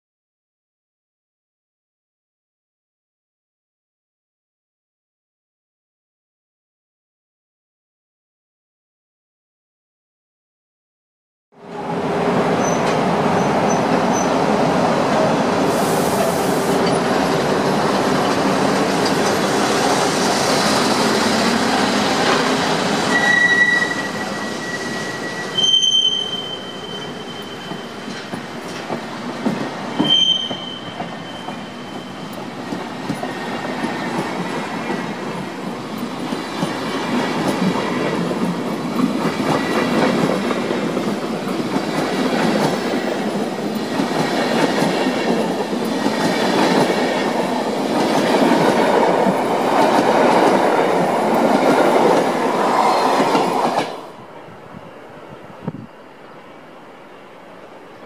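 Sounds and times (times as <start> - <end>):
electric locomotives passing: 11.6 - 58.0
high wheel squeals: 23.0 - 28.3, 29.8 - 32.4.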